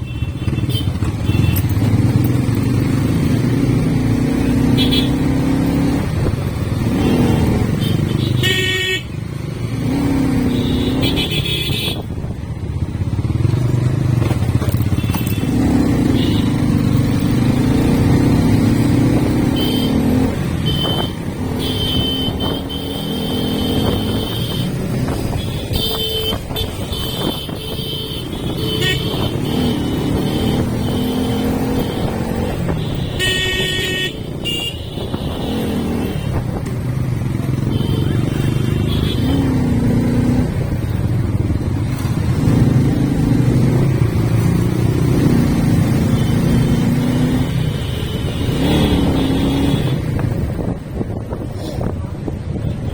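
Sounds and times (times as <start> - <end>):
vehicle horns beeping: 0.0 - 2.1, 4.5 - 5.6, 6.8 - 9.2, 10.1 - 12.2, 14.8 - 16.9, 19.2 - 36.6, 37.4 - 39.7, 46.0 - 50.6
motorcycle engine revving: 0.1 - 52.9.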